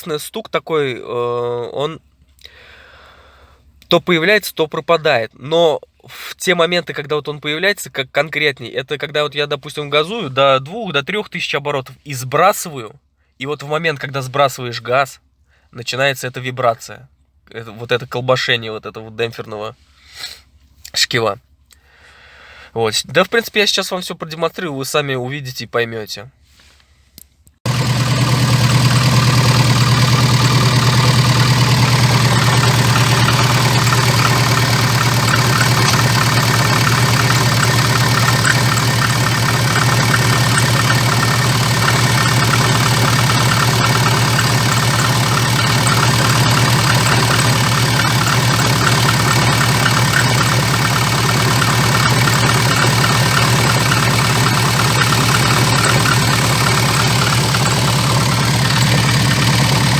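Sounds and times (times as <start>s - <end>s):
car engine idling: 27.7s - 59.9s
rapid engine ticking: 27.7s - 59.9s.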